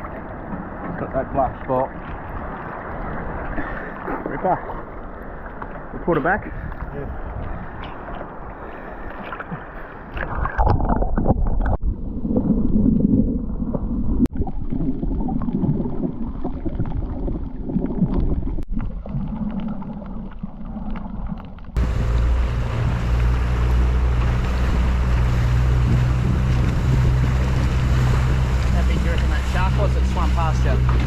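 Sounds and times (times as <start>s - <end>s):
muffled water sloshing: 0.0s - 31.0s
hiss of wind and water: 21.8s - 31.0s
outboard motor running: 21.8s - 31.0s.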